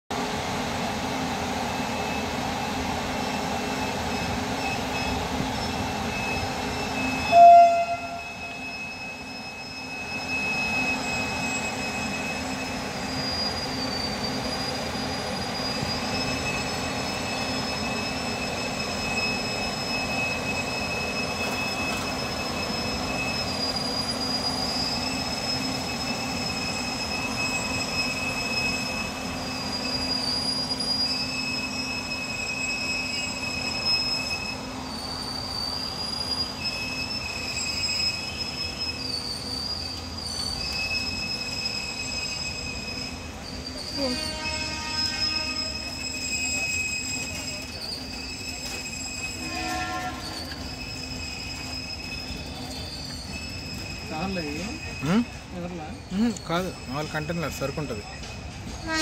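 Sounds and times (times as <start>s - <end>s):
train wheels rumbling on rails: 0.1s - 59.0s
high squealing tones: 3.4s - 59.0s
train horn toot: 7.2s - 8.7s, 43.9s - 45.9s, 49.4s - 50.6s.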